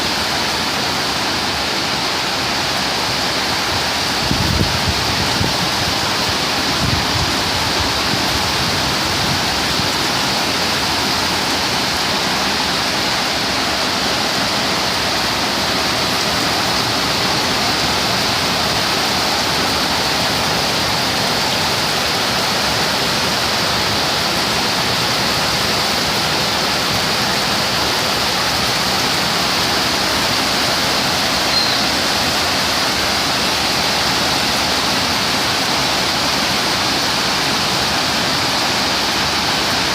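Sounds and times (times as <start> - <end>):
torrential rain pouring: 0.0 - 39.9.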